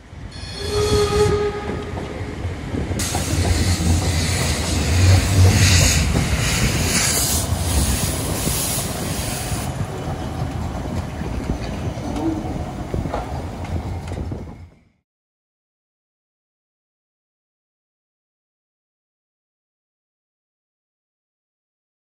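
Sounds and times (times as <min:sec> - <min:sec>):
train rumble and hiss: 0:00.0 - 0:14.9
steam train whistle: 0:00.3 - 0:02.0.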